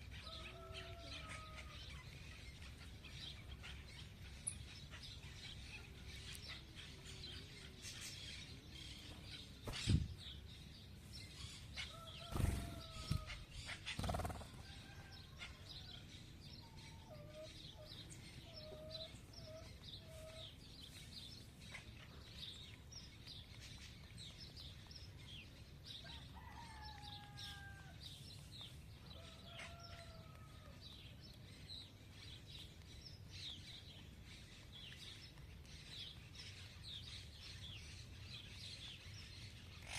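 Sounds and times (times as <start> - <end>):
drawn-out bird calls: 11.8 - 14.6.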